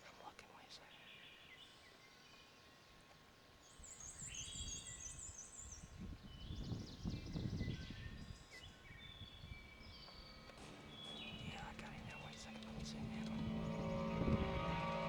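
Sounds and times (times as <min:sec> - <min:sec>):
songbirds singing trills: 0:00.0 - 0:15.0
wind gusting on microphone: 0:04.5 - 0:15.0.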